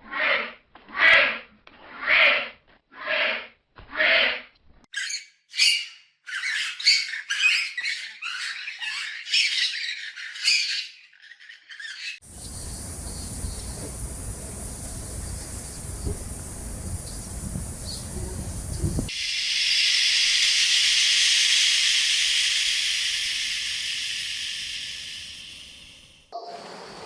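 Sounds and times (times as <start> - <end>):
birds squawking and calling: 5.0 - 12.2
steady hiss: 12.2 - 27.0.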